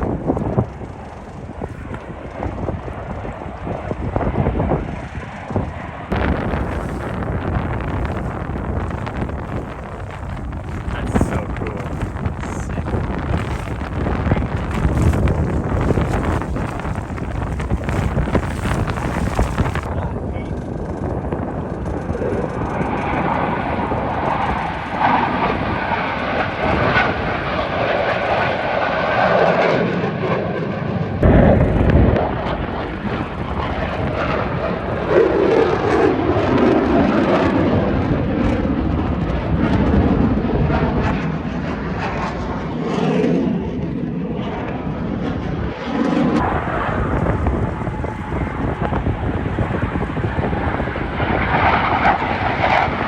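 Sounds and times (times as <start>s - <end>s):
wind buffeting microphone: 0.0s - 29.7s, 30.9s - 53.0s
airplane engine noise: 0.0s - 53.0s
low rumble burst: 6.1s - 24.5s, 46.4s - 53.0s.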